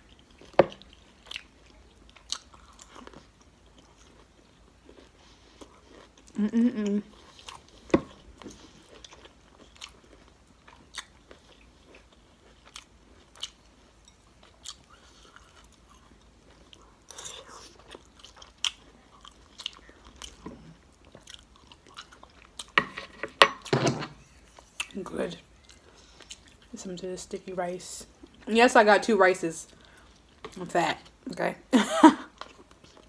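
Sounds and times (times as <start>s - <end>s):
chewing and wet mouth sounds: 0.0s - 22.8s, 24.3s - 26.8s, 32.3s - 33.0s.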